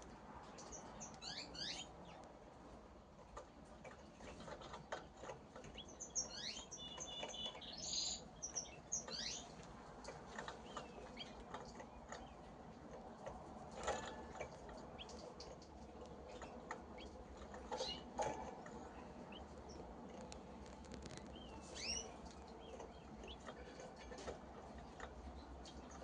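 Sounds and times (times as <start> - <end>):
canaries chirping: 0.4 - 2.3, 3.8 - 26.0
clicks and rustles of movement: 3.1 - 5.9, 9.4 - 26.0.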